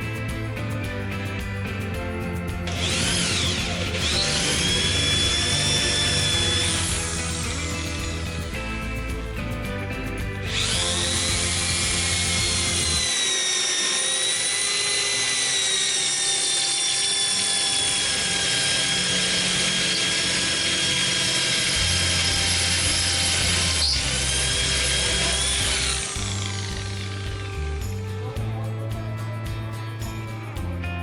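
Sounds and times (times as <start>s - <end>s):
electric drill motor whining: 2.7s - 9.2s, 10.5s - 28.1s.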